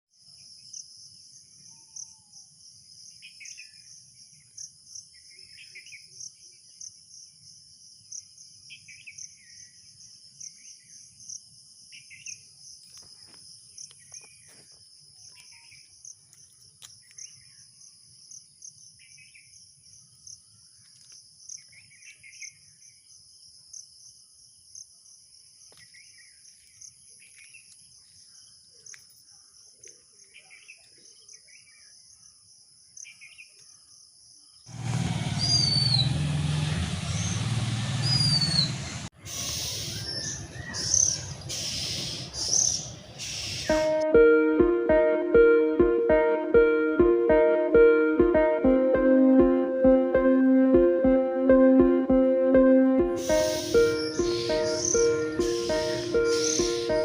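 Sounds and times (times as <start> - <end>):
crickets chirping: 0.2 - 29.8, 31.0 - 43.8, 53.2 - 57.0
bird chirps: 11.9 - 23.0, 35.4 - 36.1, 38.0 - 44.0, 53.2 - 57.0.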